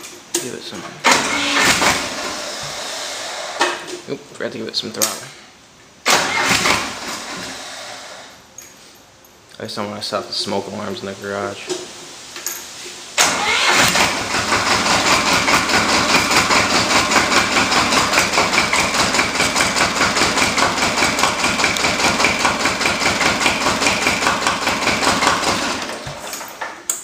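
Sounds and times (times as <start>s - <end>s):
starter motor engaging: 1.0s - 3.6s, 6.0s - 8.2s, 13.2s - 26.3s
diesel engine running: 13.2s - 26.1s.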